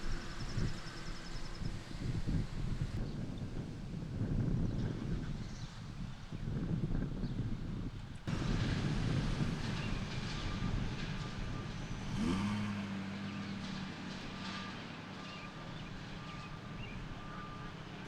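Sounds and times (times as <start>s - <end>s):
engine running: 8.2s - 18.0s.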